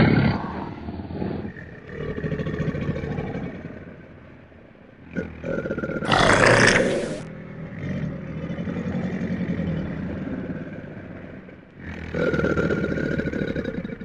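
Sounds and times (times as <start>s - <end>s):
crocodile low growl: 0.0s - 3.9s, 5.1s - 14.0s
crocodile hissing: 6.0s - 7.3s.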